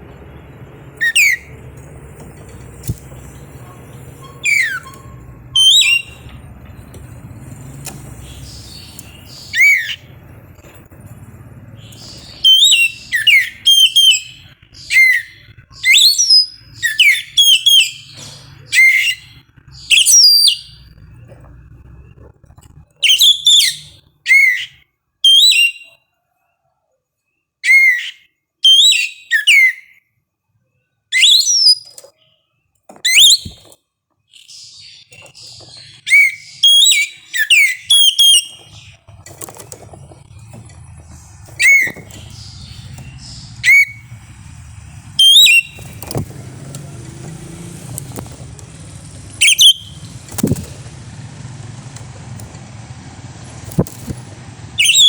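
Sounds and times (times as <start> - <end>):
bird singing whistled notes: 1.0 - 1.6, 2.8 - 6.3, 7.7 - 10.2, 11.8 - 21.0, 23.0 - 26.0, 27.6 - 30.0, 31.1 - 32.0, 33.0 - 33.6, 34.3 - 39.0, 40.2 - 47.2, 48.2 - 50.8, 54.7 - 55.0.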